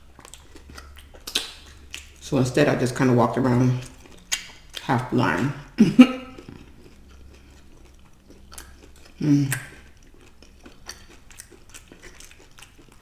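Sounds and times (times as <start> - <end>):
chewing food: 0.0 - 13.0
short vocal sound: 9.2 - 9.7.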